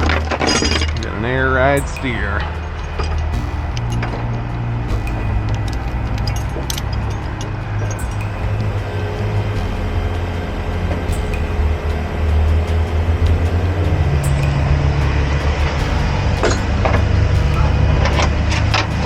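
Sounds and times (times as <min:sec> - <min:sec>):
sharp metallic clanks: 0:00.0 - 0:19.0
truck diesel engine rumbling: 0:00.0 - 0:19.0.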